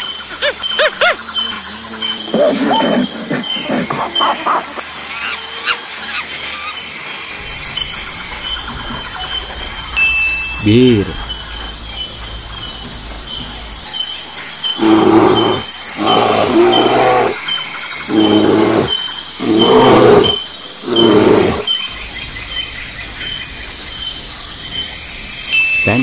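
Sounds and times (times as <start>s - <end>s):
insects chirping: 0.0s - 26.0s
bear growling and roaring: 1.9s - 4.2s, 10.6s - 21.7s.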